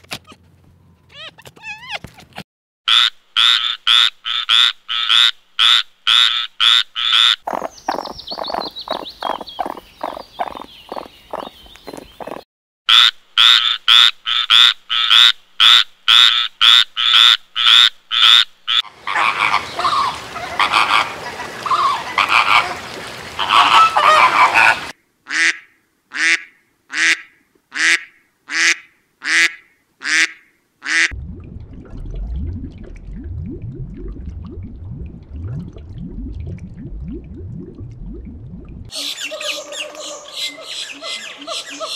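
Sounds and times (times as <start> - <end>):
flamingos honking: 18.8 - 25.0
aquarium water rumble: 31.1 - 38.9.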